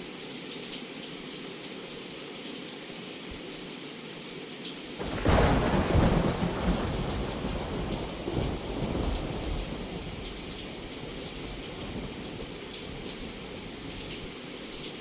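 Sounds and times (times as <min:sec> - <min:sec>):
heavy rain: 0:04.9 - 0:15.0
thunderclap with rolling rumble: 0:05.0 - 0:14.3.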